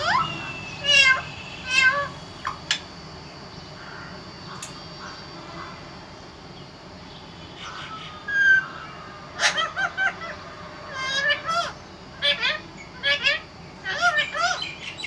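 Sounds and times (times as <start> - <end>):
parrot calling: 0.0 - 2.8, 7.6 - 15.0.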